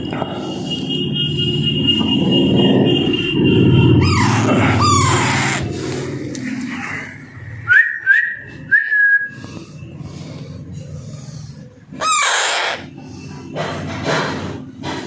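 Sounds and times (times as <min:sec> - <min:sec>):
parakeet whistled calls: 0:04.0 - 0:05.8, 0:12.0 - 0:12.9
parakeet chick squawking: 0:04.0 - 0:05.9, 0:11.9 - 0:12.9.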